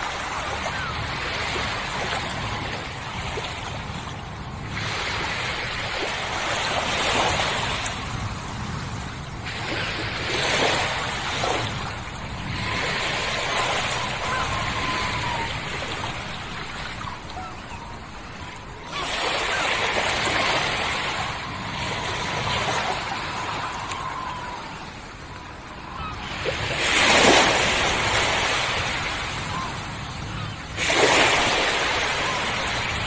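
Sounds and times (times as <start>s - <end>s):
ocean waves washing: 0.0s - 33.0s.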